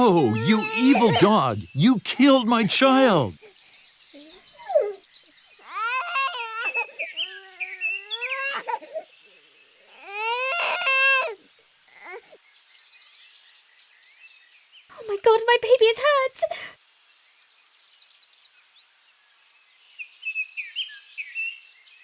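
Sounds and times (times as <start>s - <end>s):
baby crying: 0.0s - 1.6s, 5.7s - 9.0s, 9.9s - 11.4s.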